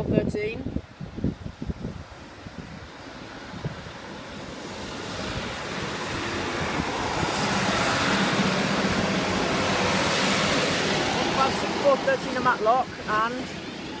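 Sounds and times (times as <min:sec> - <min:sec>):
train rumbling past: 0:02.0 - 0:14.0
low engine drone: 0:03.8 - 0:14.0.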